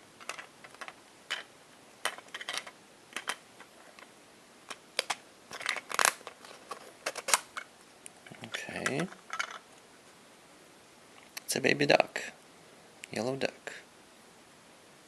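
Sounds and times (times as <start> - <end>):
plastic toy egg clicking and rattling: 0.2 - 4.1, 4.7 - 7.7.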